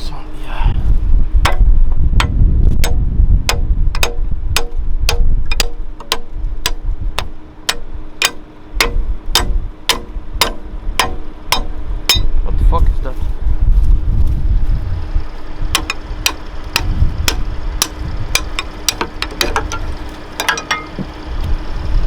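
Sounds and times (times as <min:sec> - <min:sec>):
tractor engine rumble: 0:00.0 - 0:22.0
sharp regular ticking: 0:01.5 - 0:12.4, 0:15.1 - 0:21.7.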